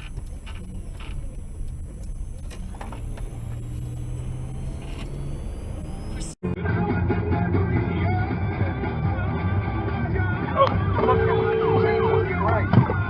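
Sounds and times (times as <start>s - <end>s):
steady low hum: 0.0s - 6.4s
car engine and road noise: 0.0s - 13.0s.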